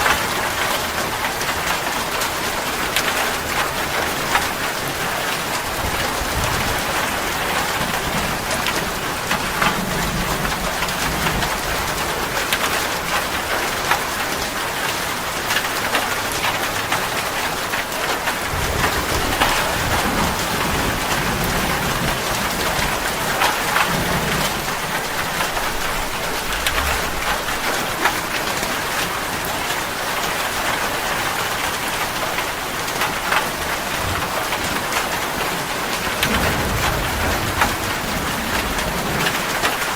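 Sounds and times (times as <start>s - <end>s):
steady rain falling: 0.0s - 39.9s
distant thunder rumbling: 3.2s - 13.8s, 18.2s - 29.0s, 33.7s - 39.9s.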